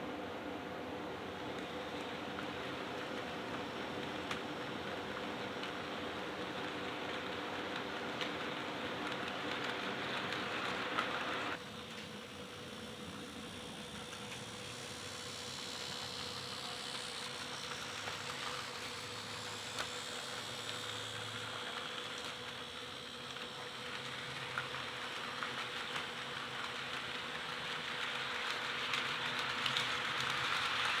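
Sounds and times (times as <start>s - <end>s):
model train motor whirring: 5.6s - 31.0s.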